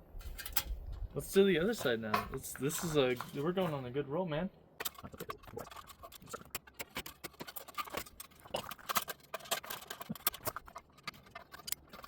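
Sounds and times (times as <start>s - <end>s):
metal pieces clicking and scraping: 0.2s - 0.8s, 4.8s - 12.0s.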